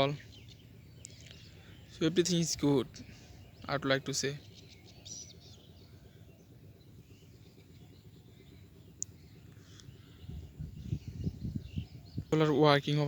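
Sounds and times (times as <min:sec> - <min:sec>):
uneven low rumbling: 0:00.0 - 0:13.0.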